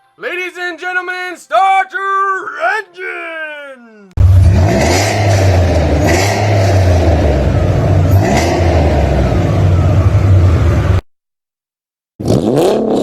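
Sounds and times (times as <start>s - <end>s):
car engine deep exhaust drone: 4.2s - 11.0s.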